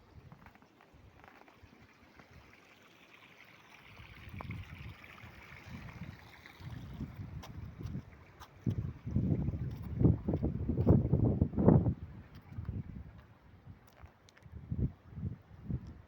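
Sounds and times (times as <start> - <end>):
running water: 0.0 - 14.4
wind buffeting microphone: 4.2 - 13.8.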